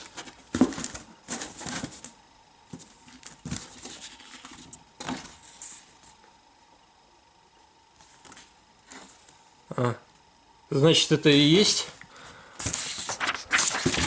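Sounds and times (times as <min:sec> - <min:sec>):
wrapping rustling and crinkling: 0:12.6 - 0:14.0.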